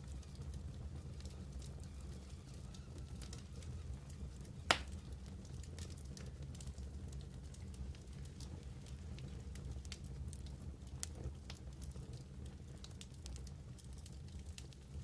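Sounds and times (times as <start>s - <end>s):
wood fire crackling: 0.0s - 15.0s
loud pop of fire: 4.7s - 5.0s.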